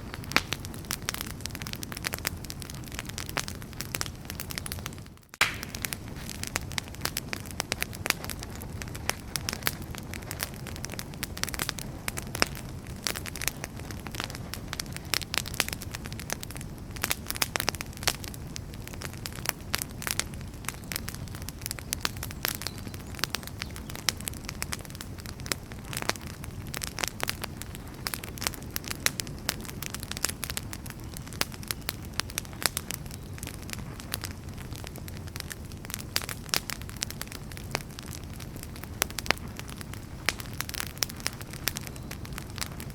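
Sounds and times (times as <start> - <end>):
wood fire crackling: 0.0 - 42.9.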